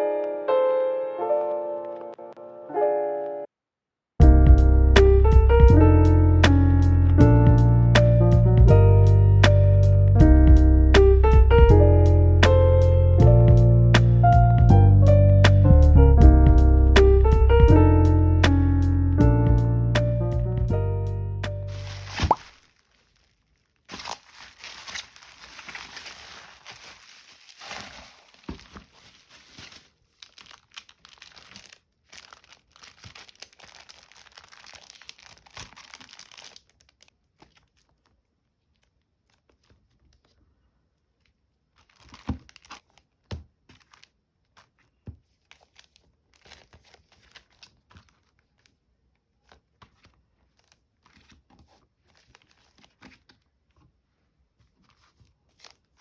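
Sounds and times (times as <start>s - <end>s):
packaging crinkling and tearing: 21.7s - 40.4s, 41.7s - 48.8s, 49.4s - 53.4s, 54.9s - 56.0s.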